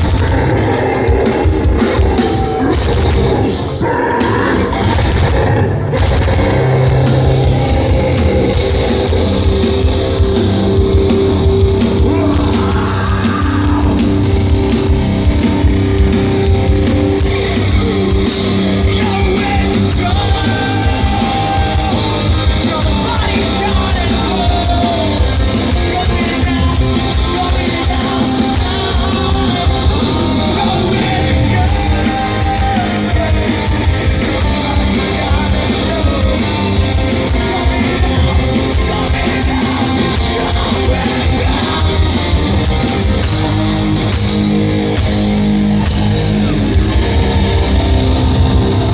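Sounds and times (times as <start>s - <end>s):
shouted vocals: 0.0s - 14.7s
distorted electric guitars: 0.0s - 48.9s
drums: 0.0s - 48.9s.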